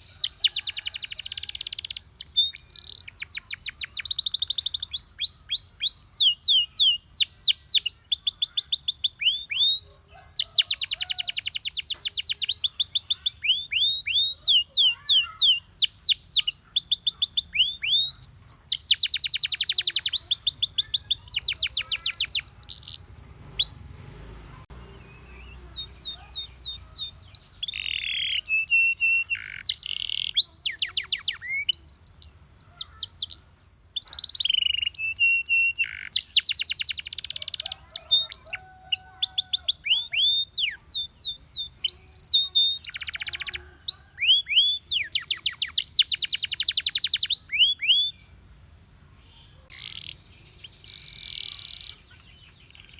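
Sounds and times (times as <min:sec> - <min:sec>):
canary singing trills: 0:00.0 - 0:52.9.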